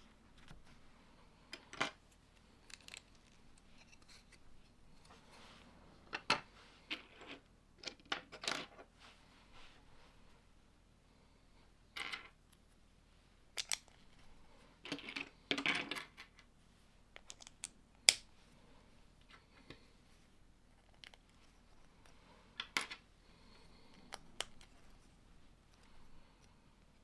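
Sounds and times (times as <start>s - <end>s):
plastic pieces clicking together: 2.6s - 3.4s, 13.6s - 14.0s, 17.2s - 18.2s.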